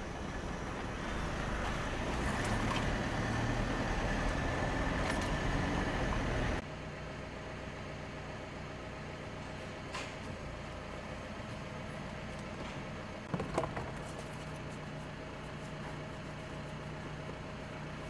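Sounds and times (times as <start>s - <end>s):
pickup engine idling: 0.0s - 2.2s.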